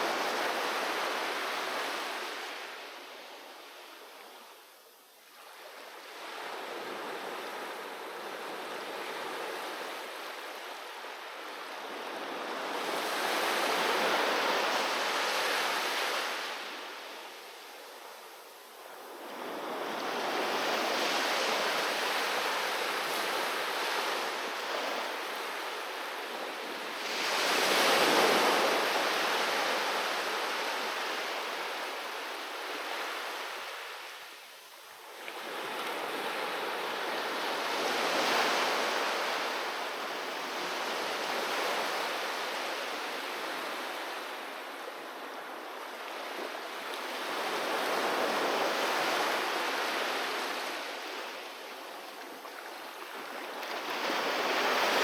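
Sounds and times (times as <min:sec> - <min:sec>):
sea waves breaking on beach: 0:18.8 - 0:34.2, 0:35.1 - 0:55.0.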